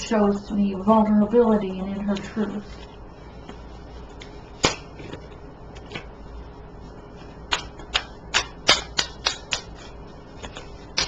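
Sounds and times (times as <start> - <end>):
quick card taps and snaps: 4.2 - 5.2, 7.5 - 9.8.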